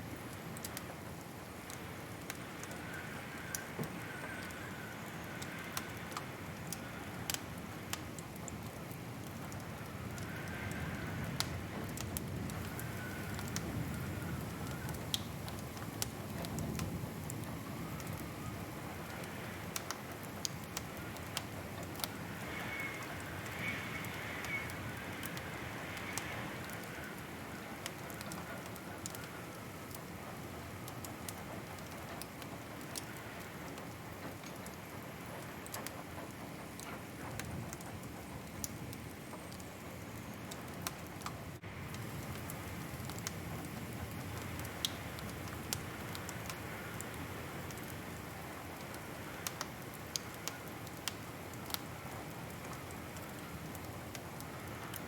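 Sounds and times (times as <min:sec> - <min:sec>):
wood fire crackling: 0:00.0 - 0:55.0
fire pops and snaps: 0:14.6 - 0:18.3, 0:19.1 - 0:22.2, 0:40.6 - 0:48.0, 0:48.8 - 0:55.0.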